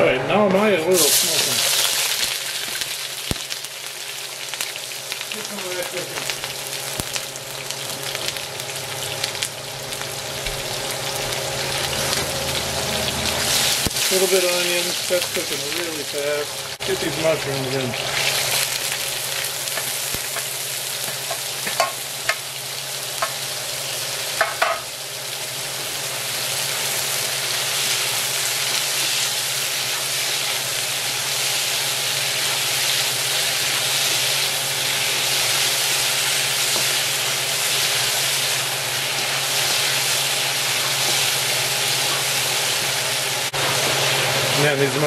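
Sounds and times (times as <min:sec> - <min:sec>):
food sizzling in oil: 0:00.9 - 0:45.0
taps against wok: 0:21.1 - 0:22.4, 0:24.4 - 0:24.9.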